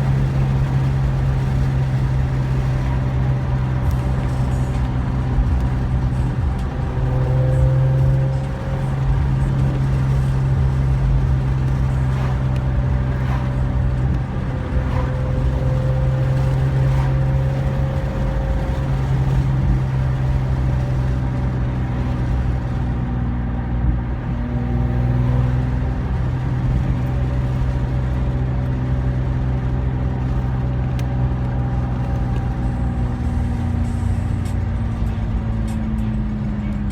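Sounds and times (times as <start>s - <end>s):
car engine droning: 0.0s - 36.9s.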